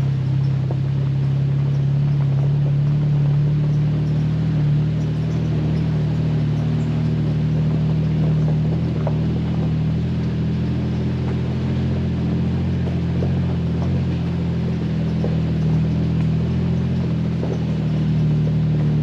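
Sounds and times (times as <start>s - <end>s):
car engine running: 0.0s - 19.0s
ticks and rattles: 0.0s - 19.0s.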